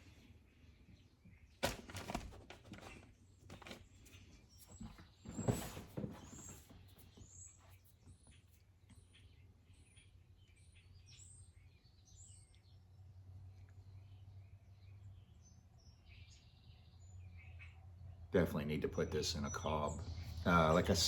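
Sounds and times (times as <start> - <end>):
bird chirping: 0.0 - 21.0.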